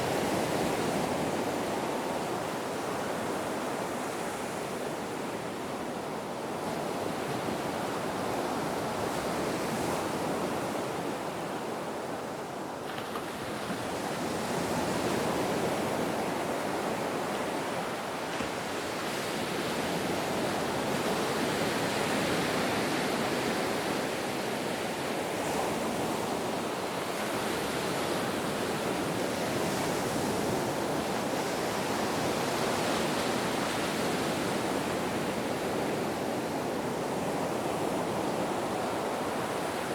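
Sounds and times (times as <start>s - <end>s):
ocean surf washing: 12.9s - 39.9s.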